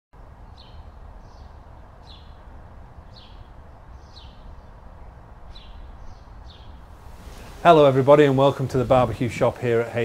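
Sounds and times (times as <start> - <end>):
low outdoor rumble: 0.2 - 10.0
small bird chirping: 0.4 - 7.7.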